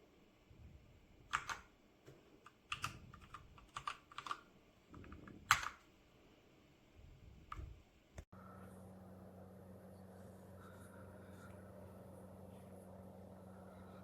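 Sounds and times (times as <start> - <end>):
mechanical keyboard keystrokes: 1.3 - 1.7, 2.5 - 5.9.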